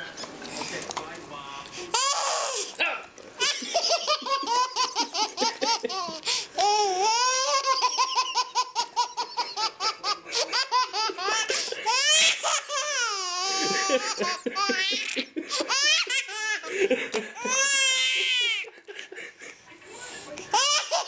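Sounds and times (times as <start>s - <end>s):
baby girl laughing: 3.4s - 18.8s, 20.5s - 21.0s.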